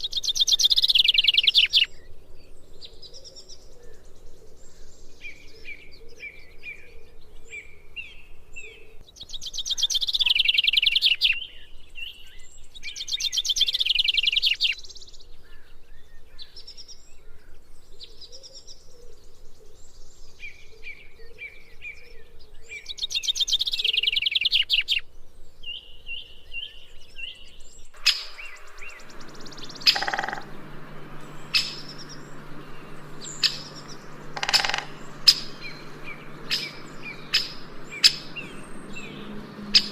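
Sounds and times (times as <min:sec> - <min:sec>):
songbird chirps and trills: 0:25.6 - 0:39.9
sharp bird call notes: 0:28.0 - 0:39.9.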